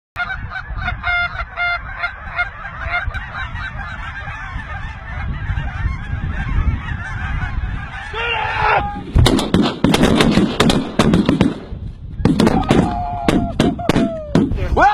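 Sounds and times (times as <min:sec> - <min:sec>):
geese honking: 0:00.2 - 0:08.9.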